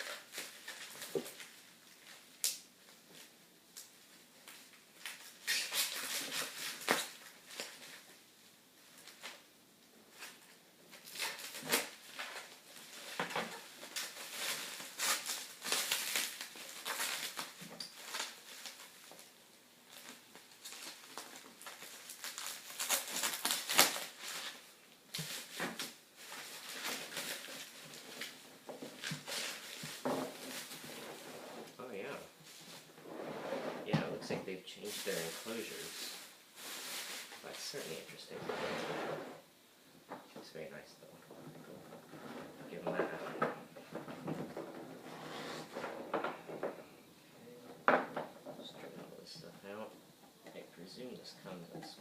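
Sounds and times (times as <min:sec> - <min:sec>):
cardboard rustling and scraping: 0:19.9 - 0:31.8, 0:34.8 - 0:39.4, 0:41.3 - 0:46.9.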